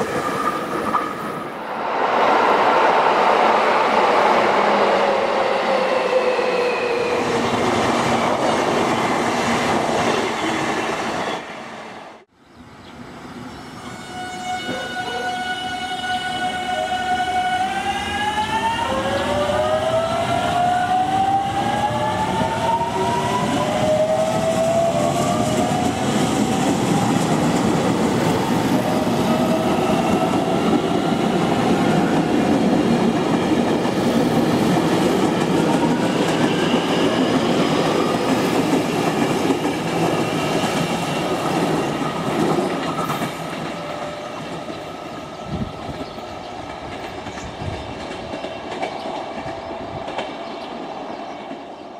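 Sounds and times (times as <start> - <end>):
train wheels rumbling on rail: 17.6 - 51.9.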